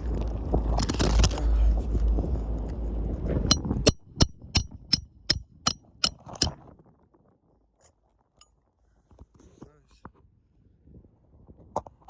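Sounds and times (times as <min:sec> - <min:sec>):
hammer striking nails: 0:03.5 - 0:06.6.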